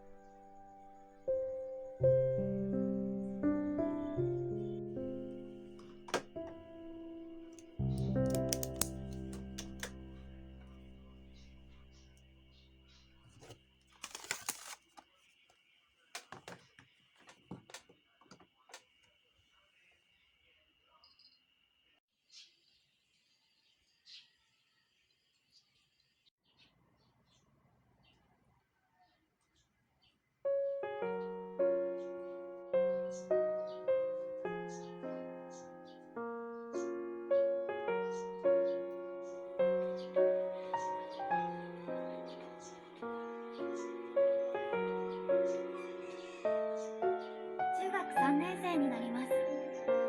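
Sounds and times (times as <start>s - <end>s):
background music: 0.0s - 11.8s, 30.7s - 50.0s.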